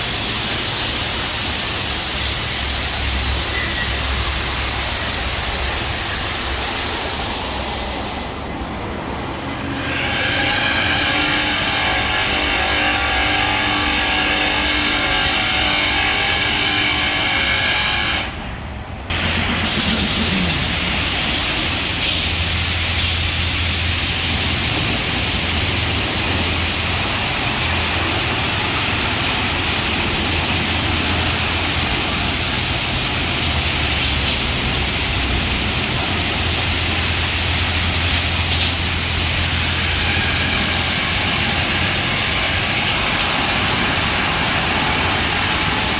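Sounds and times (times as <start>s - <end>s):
high-pressure rushing hiss: 0.0s - 8.7s, 19.1s - 45.9s
machine whine: 9.6s - 18.4s, 19.1s - 45.9s.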